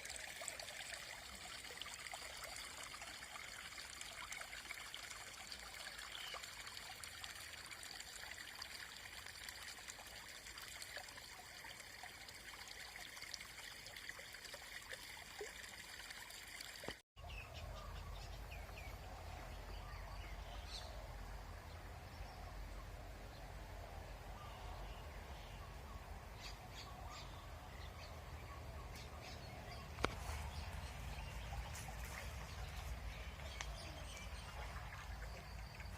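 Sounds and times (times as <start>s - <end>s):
steady trickling hiss: 0.0s - 17.0s, 29.2s - 35.9s.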